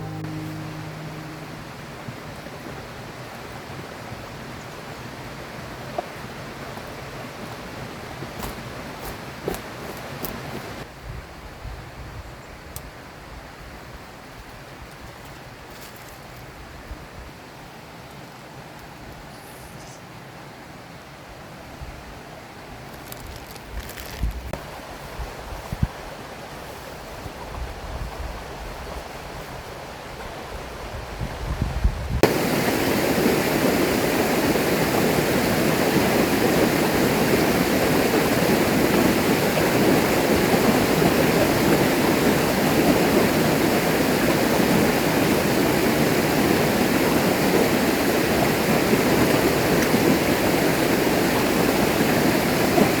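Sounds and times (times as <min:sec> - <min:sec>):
low rumble: 0:00.0 - 0:02.9
river water rushing: 0:32.2 - 0:53.0.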